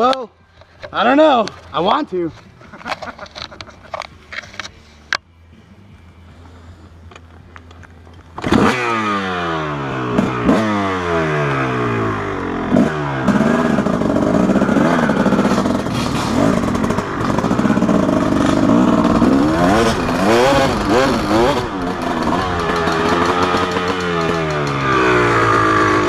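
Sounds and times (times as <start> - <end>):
dirt bike engine revving: 8.4 - 26.0.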